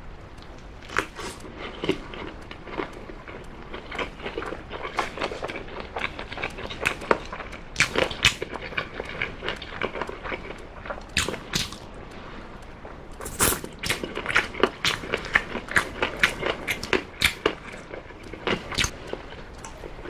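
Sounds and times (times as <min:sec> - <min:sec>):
chewing and biting meat: 0:00.4 - 0:11.9, 0:13.2 - 0:20.0
wet mouth smacks and clicks: 0:11.1 - 0:11.8, 0:13.2 - 0:17.5.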